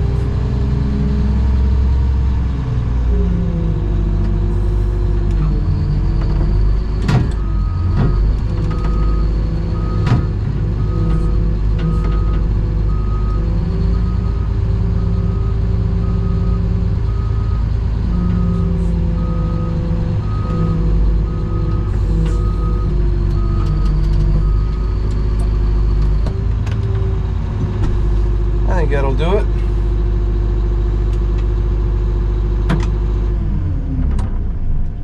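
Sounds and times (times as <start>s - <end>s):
diesel engine running: 0.0s - 35.0s
reversing alarm beeping: 7.3s - 14.4s, 15.0s - 25.9s.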